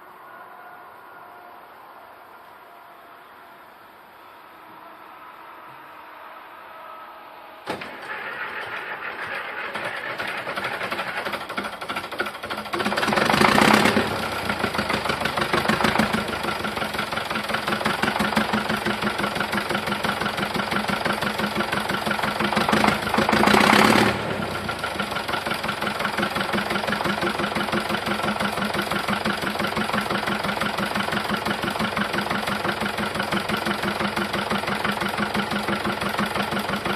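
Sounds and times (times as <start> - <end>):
tractor diesel engine starting: 7.7 - 36.9
diesel engine revving: 7.8 - 36.9
diesel engine knocking idle: 9.6 - 36.9.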